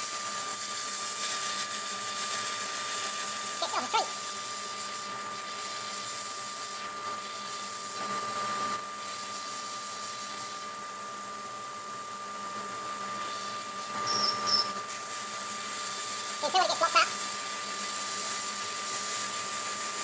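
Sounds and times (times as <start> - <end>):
hiss of compressed air and grit: 1.0 - 8.0
extractor hum: 13.8 - 14.8.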